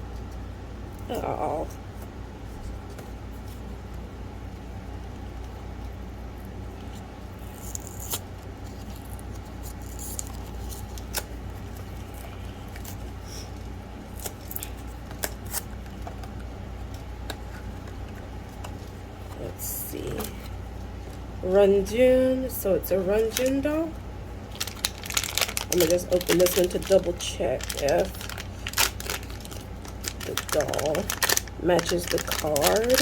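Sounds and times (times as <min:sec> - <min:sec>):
steady low hum: 0:00.0 - 0:33.0
cardboard box crinkles and clicks: 0:27.6 - 0:31.4.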